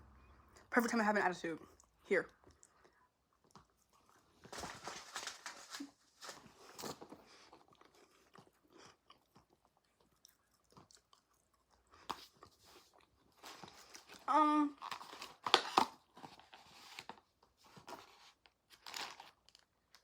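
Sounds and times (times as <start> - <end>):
person chewing crunchy food: 1.7 - 4.5, 6.4 - 14.2.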